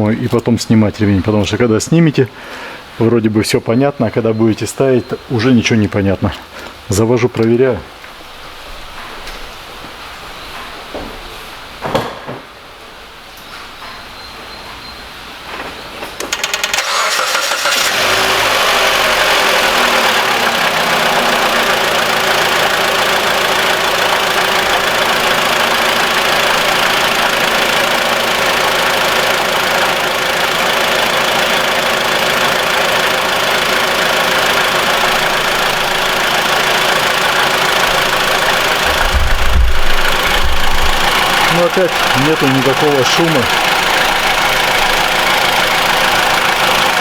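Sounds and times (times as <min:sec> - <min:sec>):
car engine idling: 0:16.2 - 0:47.0
starter motor cranking: 0:16.2 - 0:47.0.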